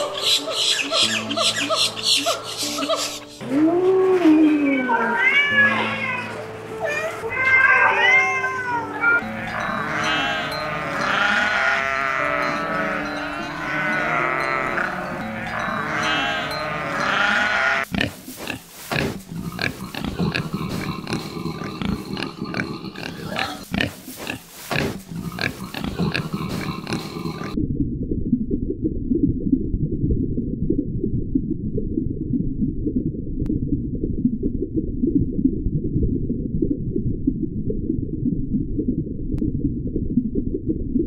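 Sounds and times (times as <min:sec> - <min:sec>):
overlapping farm animal calls: 0:00.0 - 0:03.4, 0:09.2 - 0:18.2.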